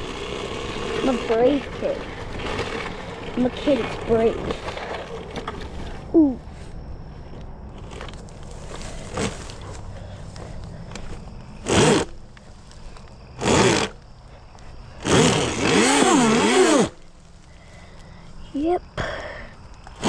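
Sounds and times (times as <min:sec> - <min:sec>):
electric motor whine: 0:00.0 - 0:05.9, 0:10.9 - 0:12.4, 0:13.0 - 0:14.2, 0:14.9 - 0:17.6.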